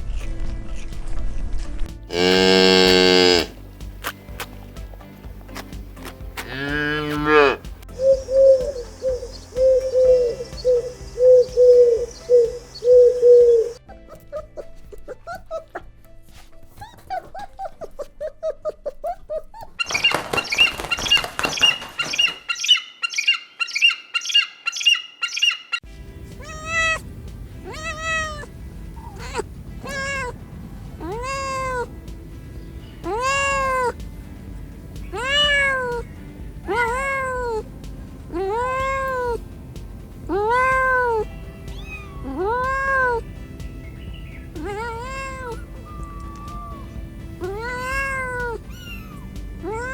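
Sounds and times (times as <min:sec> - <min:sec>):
background music: 0:00.0 - 0:21.8, 0:25.8 - 0:49.9
high chirping pulses: 0:07.9 - 0:13.8
cat meowing: 0:26.4 - 0:27.0, 0:27.6 - 0:30.4, 0:31.0 - 0:31.9, 0:33.0 - 0:34.0, 0:35.1 - 0:36.1, 0:36.7 - 0:37.7, 0:38.3 - 0:39.4, 0:40.3 - 0:43.3, 0:44.5 - 0:49.9.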